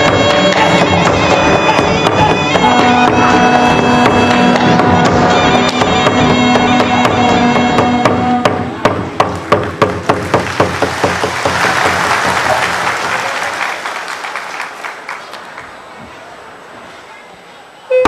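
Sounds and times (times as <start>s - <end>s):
wind instrument melody: 0.0s - 8.5s
drums: 0.0s - 13.2s
audience applause: 9.3s - 16.5s.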